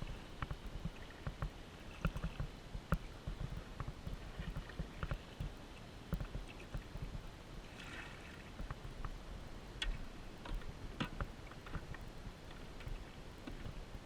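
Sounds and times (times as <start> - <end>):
gear knocking in plastic kayak: 0.0 - 7.2
wind rumble on microphone: 0.0 - 14.0.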